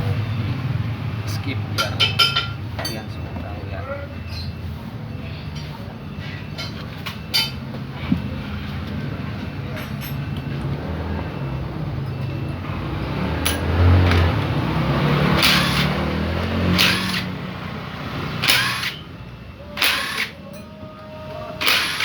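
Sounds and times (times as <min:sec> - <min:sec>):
rough motorcycle engine running: 0:07.8 - 0:20.0.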